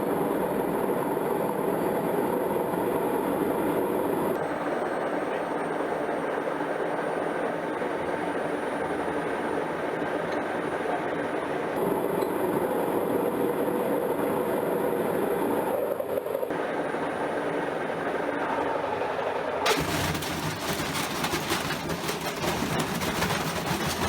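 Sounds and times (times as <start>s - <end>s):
washing machine rumbling and rattling: 19.6s - 24.0s.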